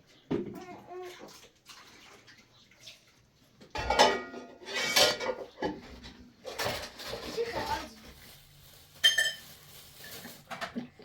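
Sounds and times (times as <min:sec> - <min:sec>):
metal cookware clattering: 0:03.7 - 0:07.9, 0:09.0 - 0:09.5.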